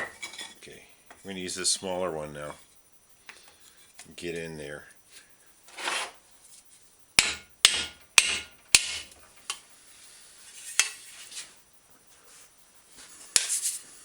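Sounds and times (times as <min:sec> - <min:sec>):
wood pounding on metal fender: 0:07.2 - 0:09.1.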